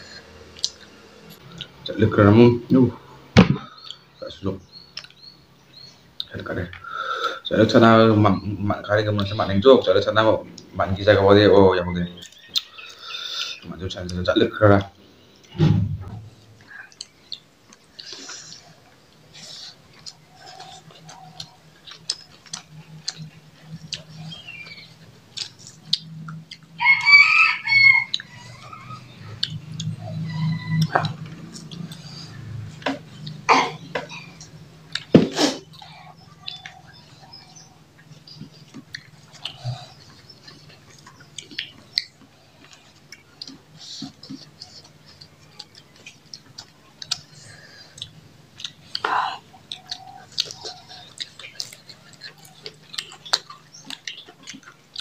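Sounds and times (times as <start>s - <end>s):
people chewing and lip smacking: 0.0s - 2.0s, 3.6s - 7.9s, 12.0s - 15.6s, 16.4s - 55.0s
rooster crowing: 26.8s - 29.1s, 30.1s - 31.4s.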